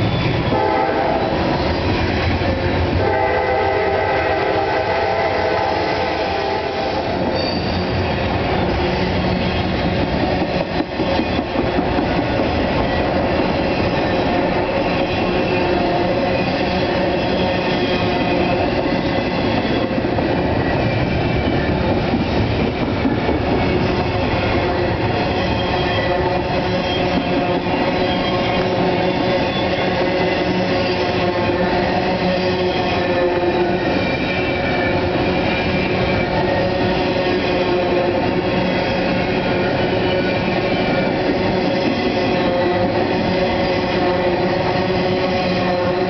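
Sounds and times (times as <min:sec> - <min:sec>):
wheels rumbling on rail: 0:00.0 - 0:46.0
locomotive horn: 0:00.4 - 0:01.5, 0:03.0 - 0:07.7, 0:25.7 - 0:29.0, 0:30.6 - 0:38.4, 0:42.2 - 0:46.0
faint wheel squeal: 0:07.3 - 0:08.0.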